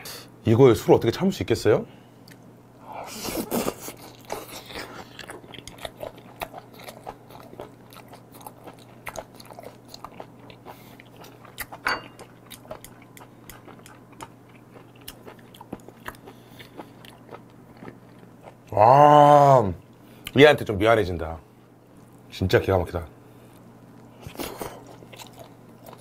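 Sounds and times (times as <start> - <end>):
wet chewing mouth clicks: 12.5 - 18.6.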